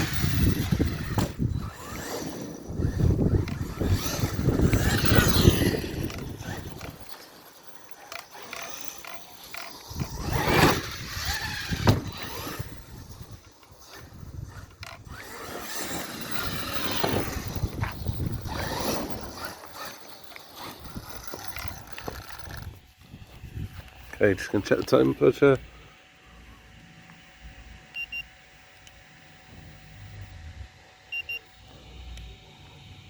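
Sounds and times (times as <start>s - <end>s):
tyres churning ground: 0.0s - 25.7s
rc truck motor whining: 0.0s - 33.0s.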